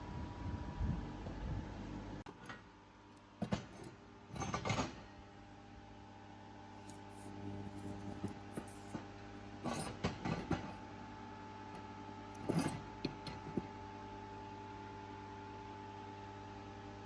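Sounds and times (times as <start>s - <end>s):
electrical hum of equipment: 0.0s - 17.0s
knocks and clatter: 3.4s - 5.1s, 8.2s - 10.8s.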